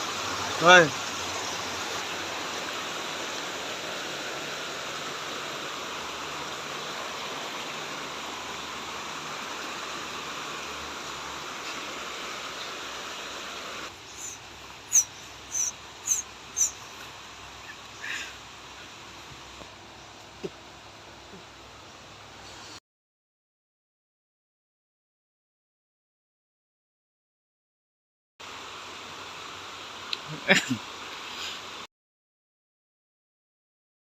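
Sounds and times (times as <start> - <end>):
stream water rushing: 0.0 - 22.8, 28.4 - 31.9
high bird chirps: 14.0 - 18.3.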